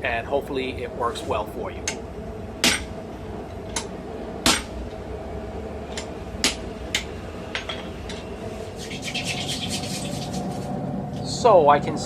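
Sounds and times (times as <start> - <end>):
hammer striking steel on anvil: 2.6 - 2.9, 3.8 - 4.8, 6.0 - 7.9.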